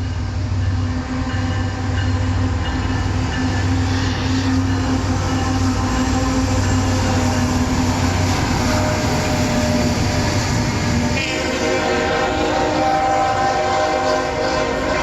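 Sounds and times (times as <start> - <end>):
train rumbling past: 0.0 - 15.0
train horn: 3.7 - 15.0.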